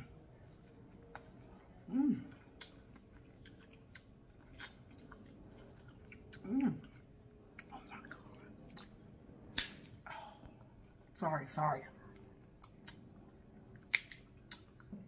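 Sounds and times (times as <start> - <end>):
person chewing corn on the cob: 0.0 - 9.2, 12.0 - 15.0
person humming mm: 1.9 - 2.4
wet mouth clicks: 13.8 - 15.0.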